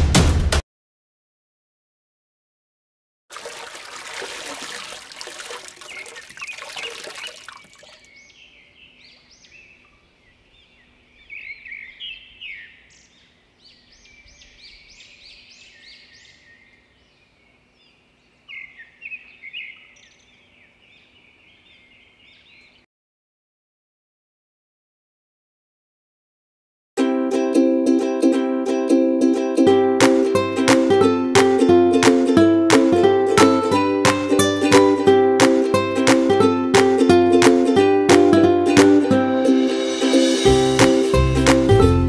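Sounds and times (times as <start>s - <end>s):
small birds chirping: 4.7s - 22.9s.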